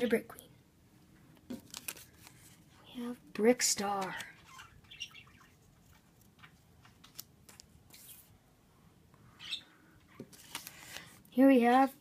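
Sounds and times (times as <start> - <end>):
birds chirping: 4.4 - 5.9, 9.3 - 10.0
faint clicks and rustles: 5.4 - 8.3.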